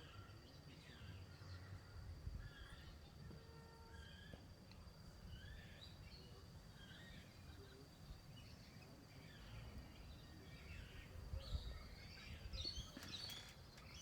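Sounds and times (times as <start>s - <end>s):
birds calling and chirping: 8.8s - 14.0s.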